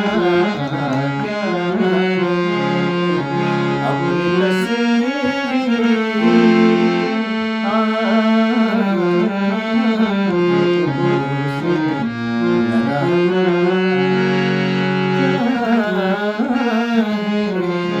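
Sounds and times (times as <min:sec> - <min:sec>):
sustained instrumental accompaniment: 0:00.0 - 0:18.0.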